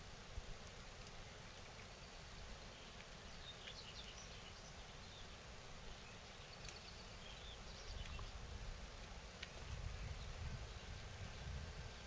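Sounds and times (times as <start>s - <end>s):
low background noise: 0.0s - 12.0s
faint bird chirps: 1.4s - 8.5s.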